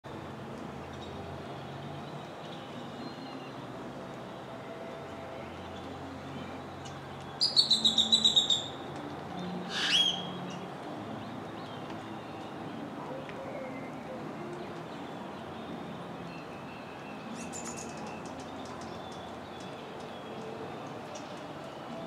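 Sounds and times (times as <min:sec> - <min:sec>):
bird chirping: 0:05.5 - 0:08.8
bird squawk: 0:09.7 - 0:10.3.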